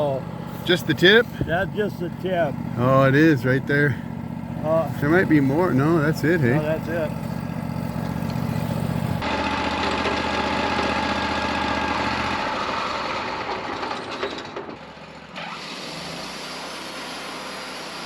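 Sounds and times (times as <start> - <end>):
sawmill engine idling: 0.0 - 18.0.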